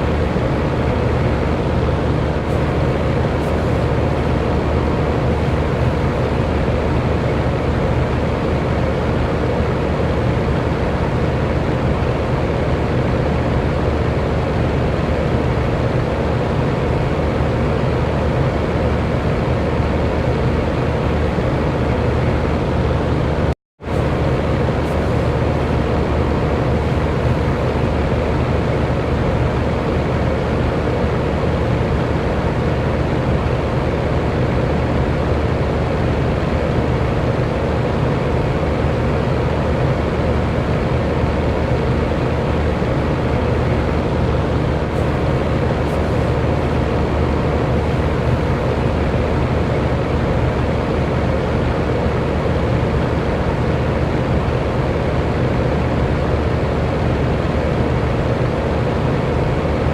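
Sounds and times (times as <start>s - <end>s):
low motor hum: 0.0s - 9.6s, 38.2s - 53.4s
electric fan whooshing: 0.0s - 59.9s.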